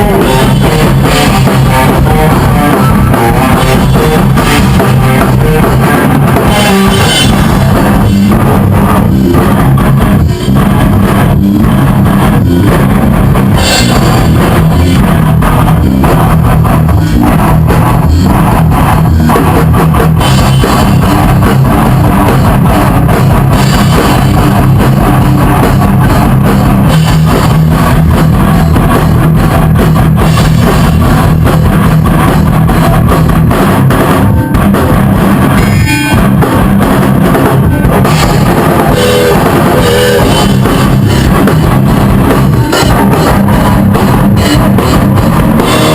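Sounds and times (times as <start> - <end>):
drum kit pounding: 0.0 - 45.9
electric guitars: 0.0 - 45.9
rock band playing: 0.0 - 45.9.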